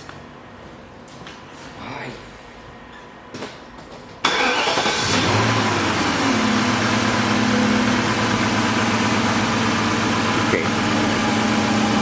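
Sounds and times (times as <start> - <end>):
car engine starting and idling: 4.2 - 12.0.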